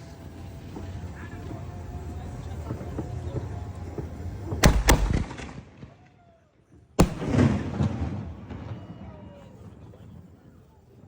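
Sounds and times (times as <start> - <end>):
fireworks crackling: 0.0 - 11.0
fireworks bangs: 2.7 - 11.0.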